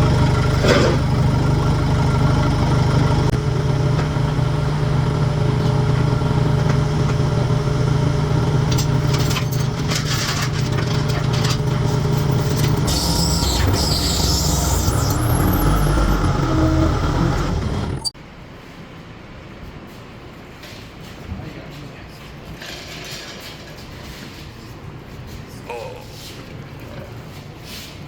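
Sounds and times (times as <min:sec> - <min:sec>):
engine idling: 0:00.0 - 0:18.2.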